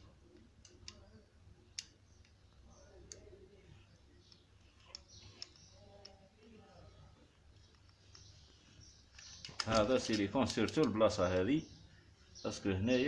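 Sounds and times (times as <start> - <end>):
faint sharp clicks: 0.3 - 6.7.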